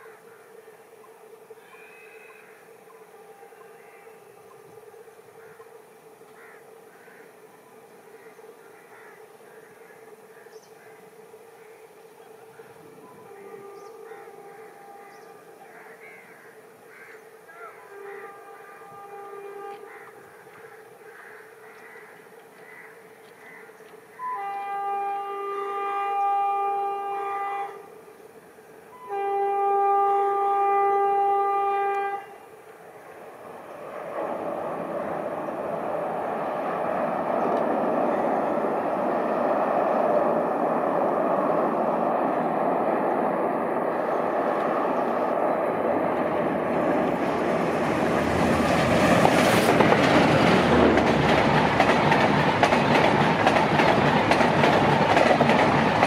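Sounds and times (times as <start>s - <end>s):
train rumble and wheel clatter: 0.0s - 56.0s
locomotive horn blasts: 13.0s - 15.6s, 17.8s - 19.9s, 24.2s - 28.0s, 28.9s - 32.6s.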